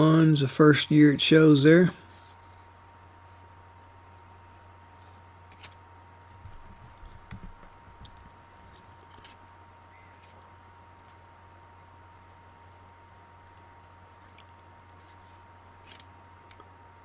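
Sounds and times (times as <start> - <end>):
faint high whine: 0.0 - 17.0
low electrical hum: 0.0 - 17.0
cards being handled: 1.8 - 11.2, 14.2 - 16.7.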